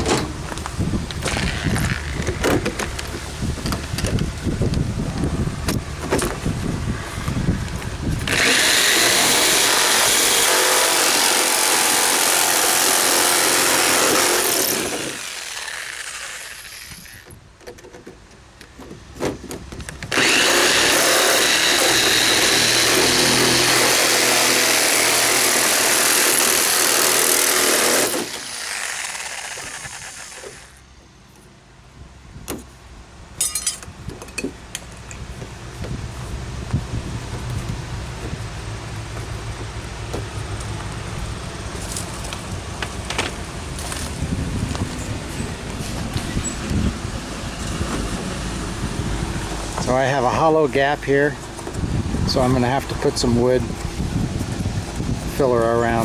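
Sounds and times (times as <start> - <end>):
power tool cutting door: 1.1 - 3.0, 8.2 - 17.3, 20.1 - 30.8.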